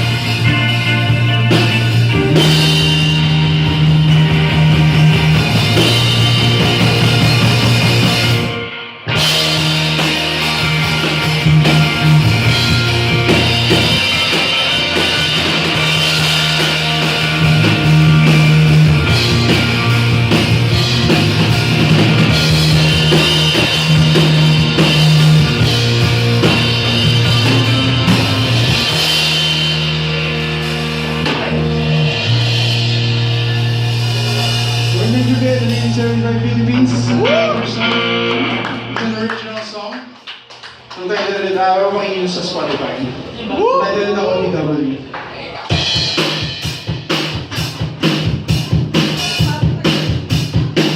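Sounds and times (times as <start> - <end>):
long held bass notes: 0.0 - 39.4
guitar: 0.0 - 50.9
rock band playing live: 0.0 - 50.9.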